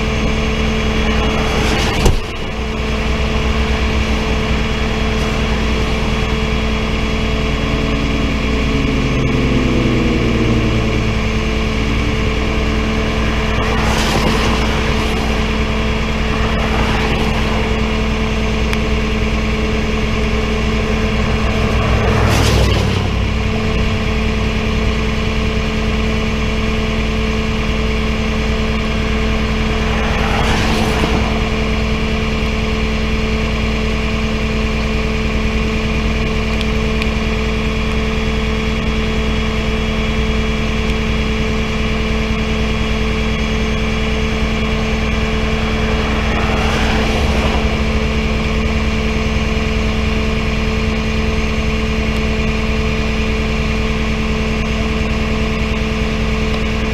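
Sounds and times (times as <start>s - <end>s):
tow truck engine idling: 0.0s - 56.9s
whooshing swells: 0.6s - 25.0s, 28.3s - 33.4s, 43.2s - 50.2s.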